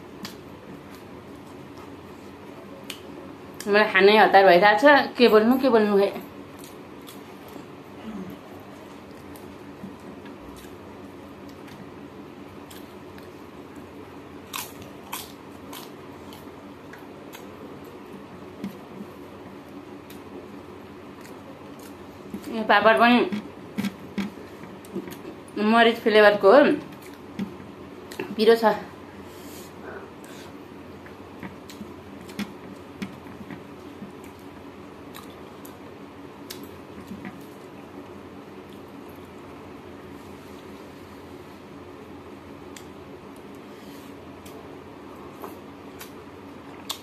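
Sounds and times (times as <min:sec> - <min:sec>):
steady low hum: 0:00.0 - 0:47.0
woman chewing: 0:14.4 - 0:20.3, 0:29.8 - 0:35.8.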